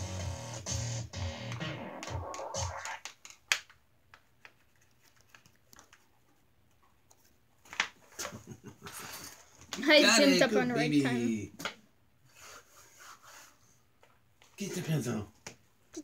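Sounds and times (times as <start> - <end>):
music with low bass line: 0.0 - 2.8.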